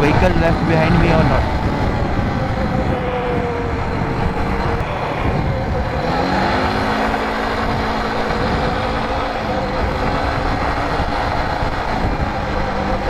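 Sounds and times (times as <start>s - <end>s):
atv engine running: 0.0s - 13.0s
wind rumble on microphone: 0.0s - 13.0s.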